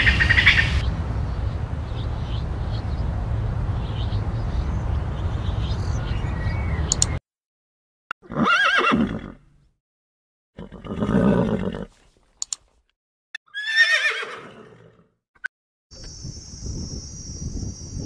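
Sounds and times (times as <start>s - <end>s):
short clicks: 6.9s - 7.2s, 12.3s - 12.8s
horses neighing: 8.2s - 9.4s, 10.6s - 12.0s, 13.5s - 15.0s.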